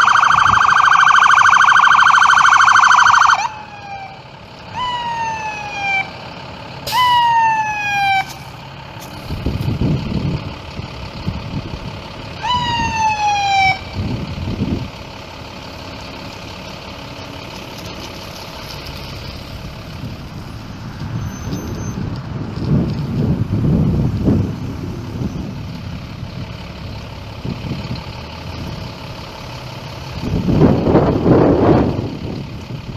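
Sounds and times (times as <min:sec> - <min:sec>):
emergency vehicle siren whoops: 0:00.0 - 0:06.2, 0:06.8 - 0:08.5, 0:12.4 - 0:14.8
vehicles passing engine rumble: 0:00.0 - 0:32.9.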